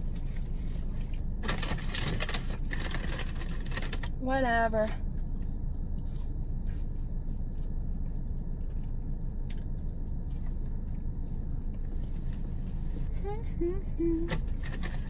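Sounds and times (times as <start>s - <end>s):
steady low hum: 0.0s - 15.0s
sharp crunchy clicks: 4.8s - 11.8s
chewing fries: 5.1s - 12.3s.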